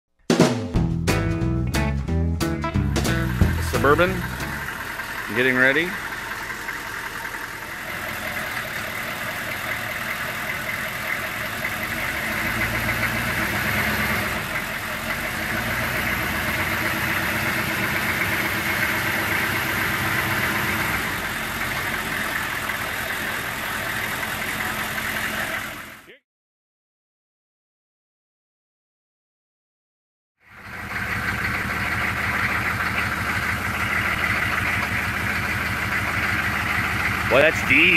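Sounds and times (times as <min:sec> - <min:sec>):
diesel engine running: 0:01.0 - 0:26.1, 0:30.4 - 0:37.9.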